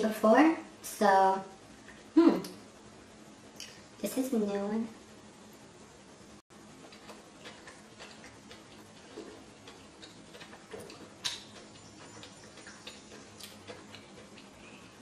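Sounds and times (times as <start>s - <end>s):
person chewing with wet clicks: 6.8s - 15.0s.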